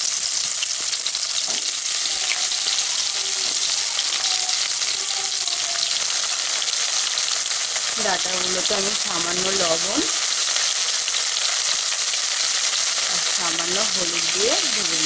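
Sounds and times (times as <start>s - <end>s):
food frying in oil: 0.0s - 15.0s.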